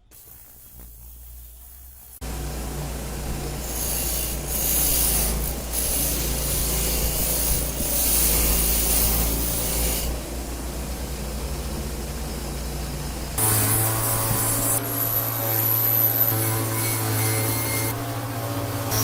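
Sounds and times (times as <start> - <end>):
small motor humming: 0.0 - 19.0
power tool rasping on metal: 3.1 - 10.4, 13.4 - 19.0.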